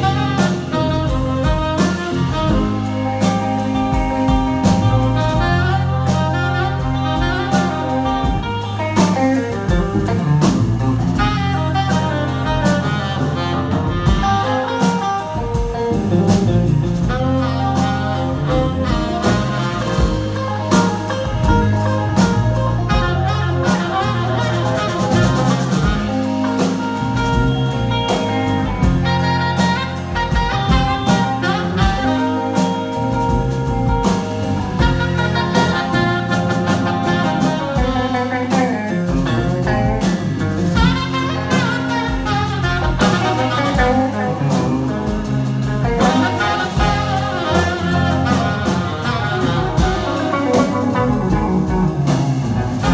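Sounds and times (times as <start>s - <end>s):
drum hits: 0.0s - 14.6s, 15.4s - 52.9s
bass line: 0.0s - 52.9s
live band playing jazzy music: 0.0s - 52.9s.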